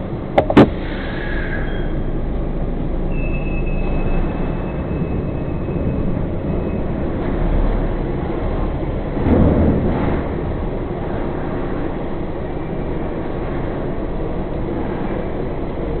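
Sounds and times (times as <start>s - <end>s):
truck engine and road rumble: 0.0s - 16.0s
rush of rumble and hiss: 6.0s - 16.0s.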